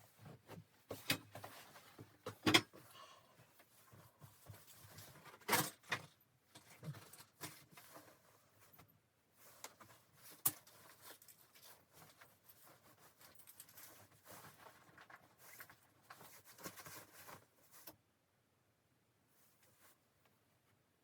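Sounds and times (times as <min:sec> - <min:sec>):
rustling and scraping of handling: 0:00.0 - 0:18.1, 0:19.2 - 0:21.0.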